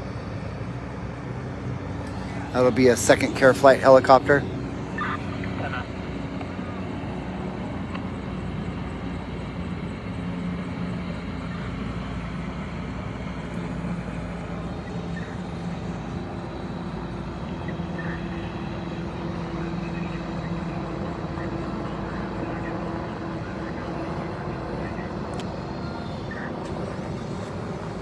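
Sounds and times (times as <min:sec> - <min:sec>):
engine drone: 0:00.0 - 0:28.0
higher hum: 0:01.9 - 0:06.7.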